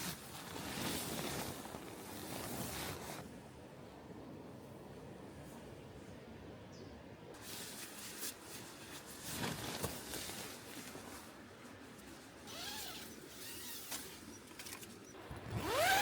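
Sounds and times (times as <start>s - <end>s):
rustling camping gear: 0.0s - 3.4s, 7.4s - 16.0s
rising-and-falling squeaks: 12.5s - 14.8s.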